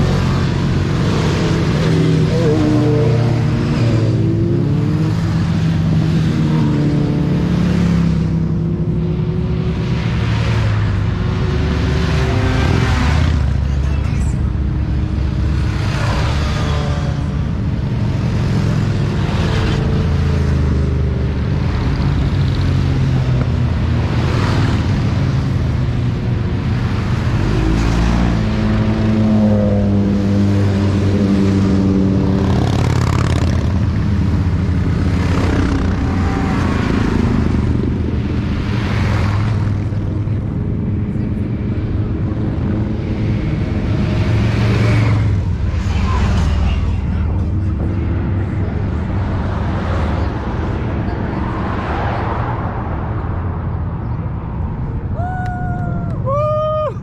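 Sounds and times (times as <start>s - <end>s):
motorcycle engines running: 0.0s - 57.0s.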